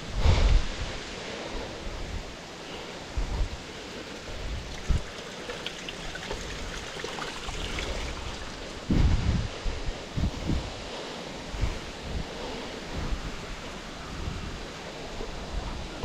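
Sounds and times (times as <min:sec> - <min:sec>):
wind gusts on microphone: 0:00.0 - 0:16.0
water trickling over rock: 0:04.0 - 0:08.8.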